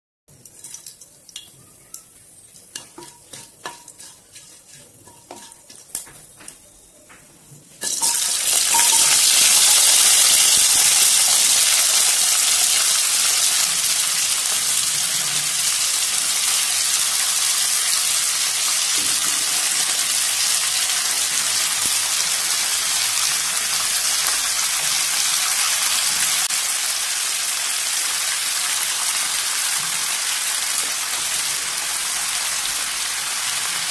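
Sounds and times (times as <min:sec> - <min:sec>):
faint oil clicks and crackles: 0:00.3 - 0:04.1
vegetables sizzling in hot oil: 0:00.3 - 0:06.1, 0:07.8 - 0:33.9.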